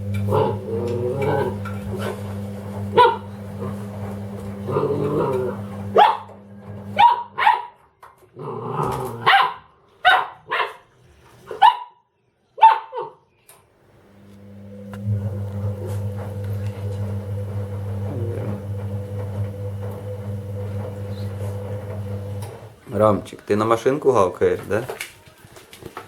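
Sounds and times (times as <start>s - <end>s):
washing machine humming: 0.0s - 7.6s, 13.9s - 23.2s
puppy growling: 0.2s - 2.2s, 2.9s - 3.9s, 4.6s - 6.0s, 8.2s - 9.3s, 18.0s - 18.6s
puppy barking: 2.9s - 3.3s, 5.9s - 7.8s, 9.2s - 10.9s, 11.5s - 13.2s.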